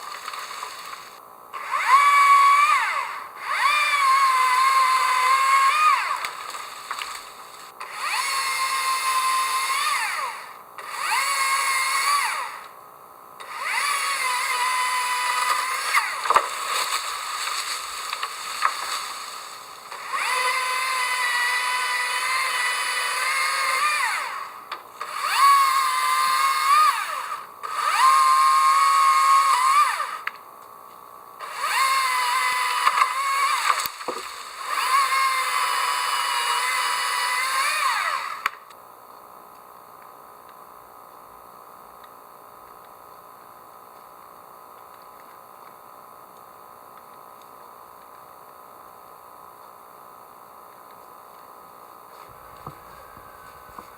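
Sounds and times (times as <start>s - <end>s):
power tool motor whining: 0.0s - 12.7s, 13.4s - 30.4s, 31.4s - 38.7s, 52.2s - 53.9s.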